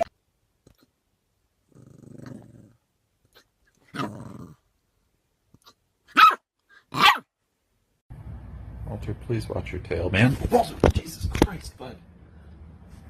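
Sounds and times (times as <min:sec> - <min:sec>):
dog growling: 0:01.7 - 0:02.8, 0:03.9 - 0:04.6
dog barking: 0:06.1 - 0:07.3.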